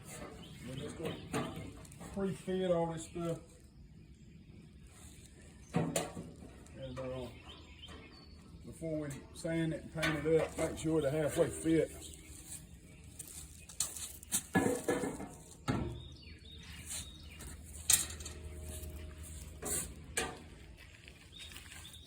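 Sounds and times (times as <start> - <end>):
steady low hum: 16.7 - 22.0
metal parts clinking and knocking: 17.8 - 18.5.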